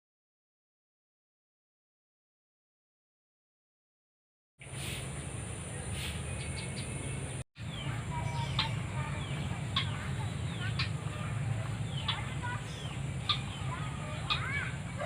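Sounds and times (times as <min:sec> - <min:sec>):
birds chirping: 0:04.6 - 0:15.0
steady background hum: 0:04.6 - 0:15.0.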